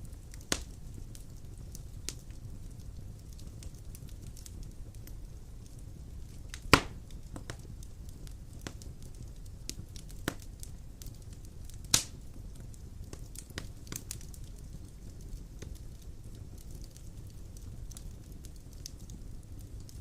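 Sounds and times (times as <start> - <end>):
fire rumbling: 0.0 - 20.0
small crackles: 0.0 - 20.0
loud sharp pops: 6.7 - 7.5.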